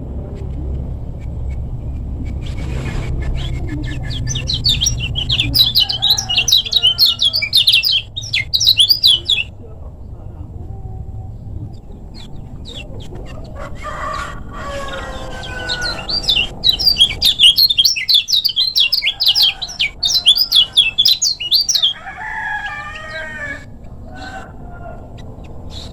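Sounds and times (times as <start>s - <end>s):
bird soft low warbling: 1.8s - 9.5s
songbird sharp high chirps: 4.0s - 9.5s, 15.4s - 22.0s.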